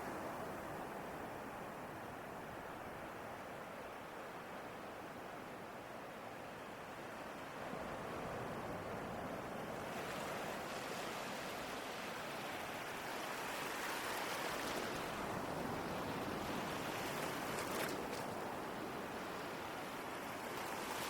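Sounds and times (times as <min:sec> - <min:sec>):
ocean waves washing: 0:07.6 - 0:21.0.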